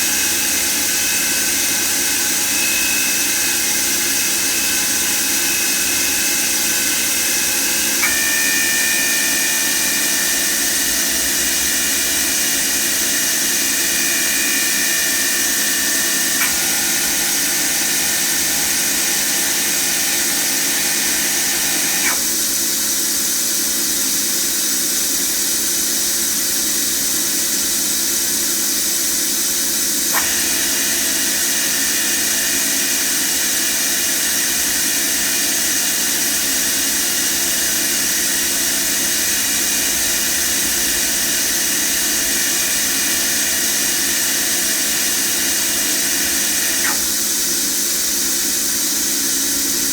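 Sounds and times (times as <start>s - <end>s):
machine spindle whine: 0.0s - 24.1s, 27.4s - 49.9s
small click: 8.0s - 8.6s, 16.3s - 18.0s, 21.9s - 22.4s, 30.1s - 30.8s, 45.6s - 47.3s.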